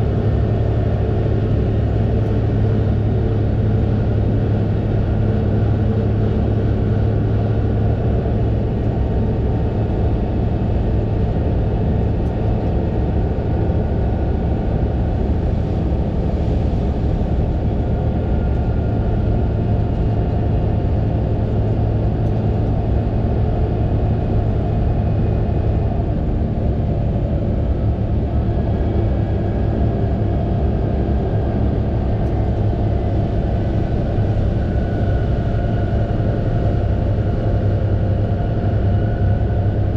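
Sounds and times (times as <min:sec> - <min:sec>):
tractor diesel engine droning: 0:12.8 - 0:39.9.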